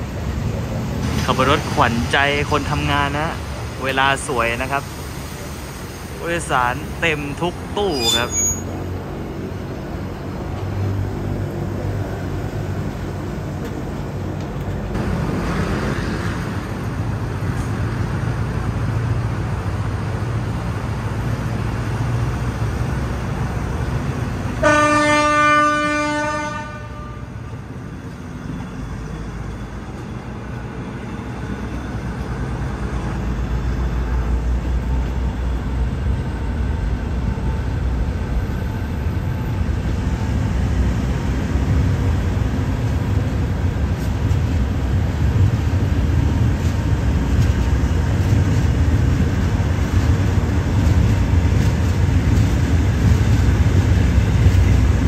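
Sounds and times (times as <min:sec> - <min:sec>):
diesel train running: 0:00.0 - 0:55.0
train horn blast: 0:24.6 - 0:27.5.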